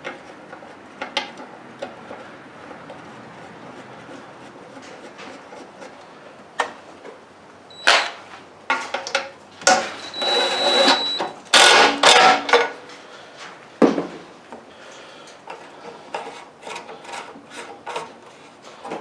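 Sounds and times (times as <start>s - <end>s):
ringing metal tone: 9.8s - 11.3s.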